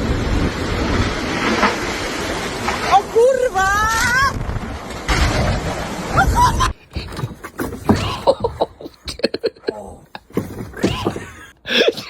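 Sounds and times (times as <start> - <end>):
person laughing: 7.9 - 10.3, 11.0 - 12.0.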